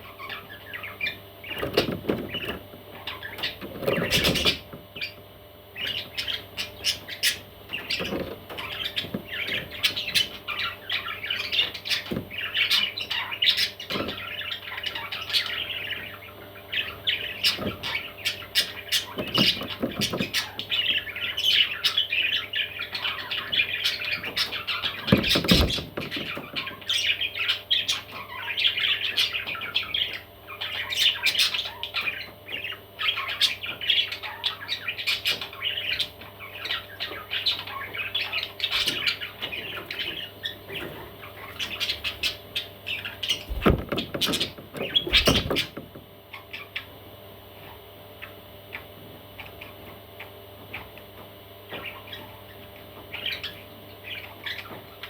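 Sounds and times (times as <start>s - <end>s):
baby parrots squawking: 0.0s - 46.9s, 51.7s - 55.0s
loud knocks: 43.5s - 46.0s.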